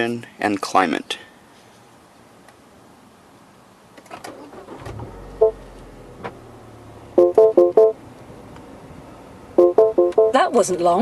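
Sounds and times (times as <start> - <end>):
car engine starting and idling: 4.0 - 11.0
short electronic chime: 7.2 - 8.0.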